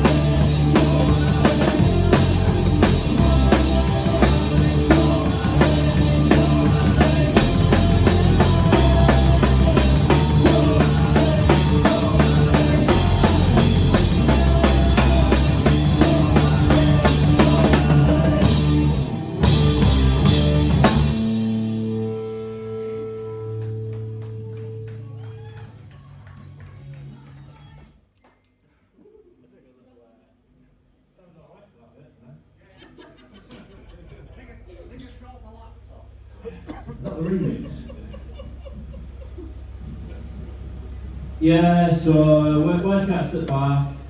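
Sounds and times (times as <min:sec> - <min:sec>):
driving drum kit: 0:00.0 - 0:24.3
live rock band playing: 0:00.0 - 0:24.8.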